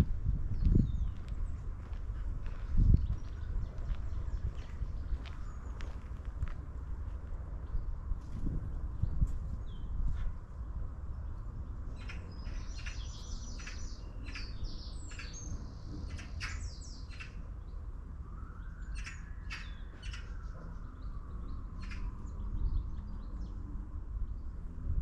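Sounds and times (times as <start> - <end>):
steady low rumble: 0.0 - 25.0
small birds chirping: 0.5 - 6.4, 11.0 - 17.9, 18.6 - 24.6.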